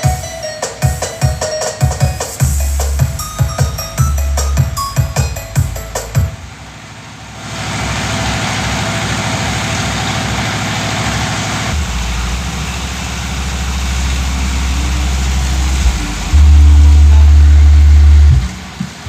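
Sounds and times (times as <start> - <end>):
heavy engine idling: 2.4 - 19.0
deep low hum: 11.7 - 18.9.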